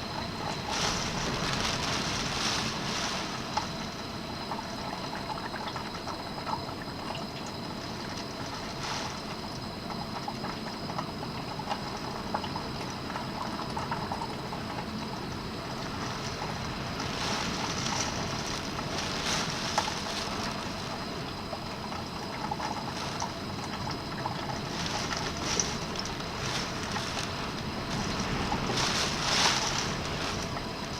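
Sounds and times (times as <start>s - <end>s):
rain drips and ticks: 0.0s - 30.9s
steady rain: 0.0s - 30.9s
wind: 0.0s - 30.9s.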